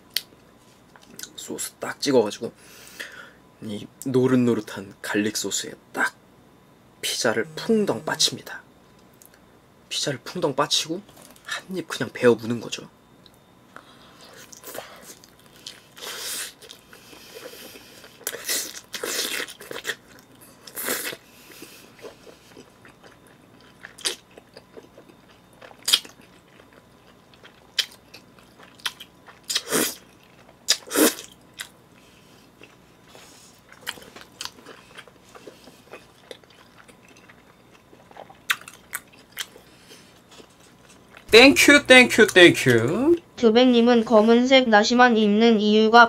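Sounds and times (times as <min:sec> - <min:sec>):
chewing pizza crust: 0:13.8 - 0:41.3.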